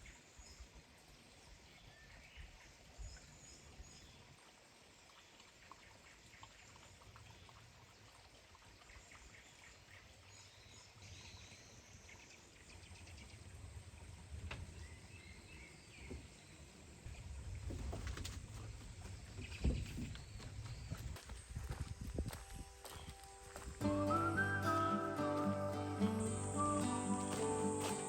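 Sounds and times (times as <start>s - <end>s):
soft hiss: 23.4s - 28.0s.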